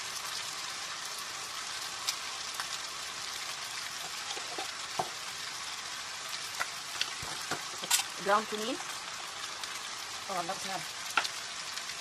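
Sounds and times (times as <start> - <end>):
chicken frying in oil: 0.0 - 12.0.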